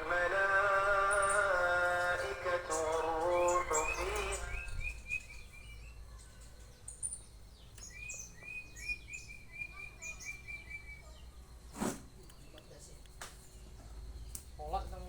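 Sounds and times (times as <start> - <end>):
canary singing: 0.0 - 11.4.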